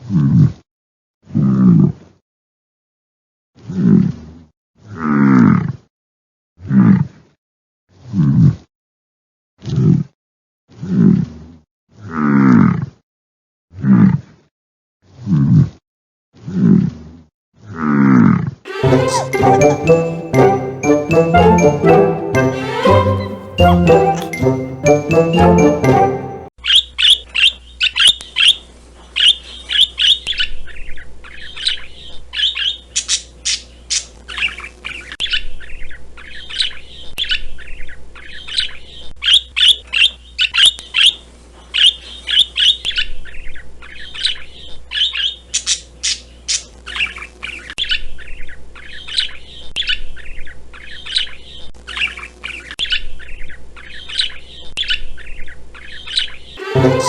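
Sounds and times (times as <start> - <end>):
parrot squawking and chirping: 18.7 - 20.9.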